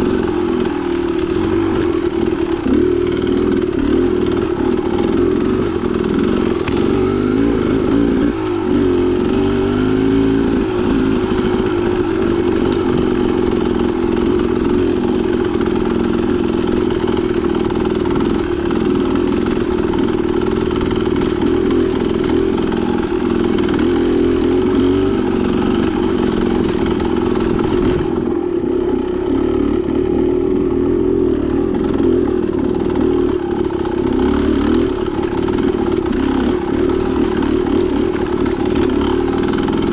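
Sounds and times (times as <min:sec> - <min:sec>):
steady rattle: 0:00.0 - 0:28.5
dirt bike engine revving: 0:00.0 - 0:39.9.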